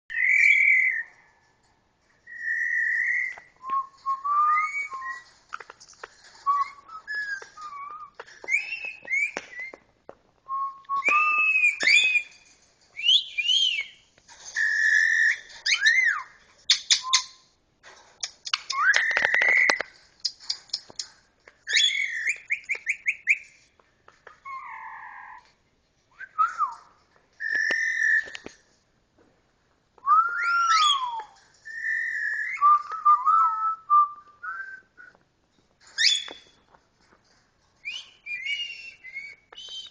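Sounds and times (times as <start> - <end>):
parrot whistling and squawking: 14.6 - 17.4, 21.7 - 23.4, 27.4 - 28.4, 30.4 - 32.6.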